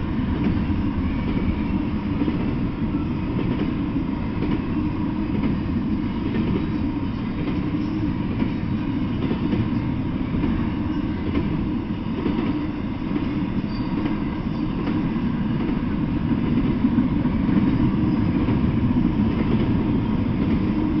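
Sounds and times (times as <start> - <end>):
freight train rolling past: 0.0 - 21.0.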